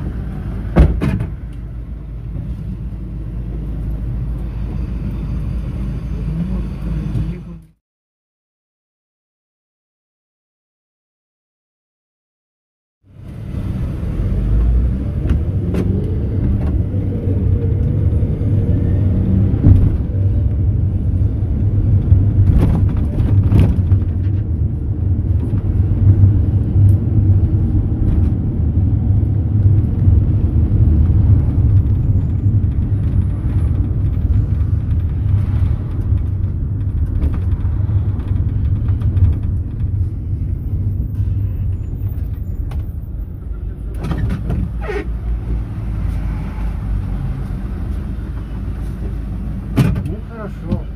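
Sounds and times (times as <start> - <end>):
engine and road rumble: 0.0 - 7.8, 13.0 - 50.9
rattles and knocks: 22.0 - 24.6, 31.6 - 40.8.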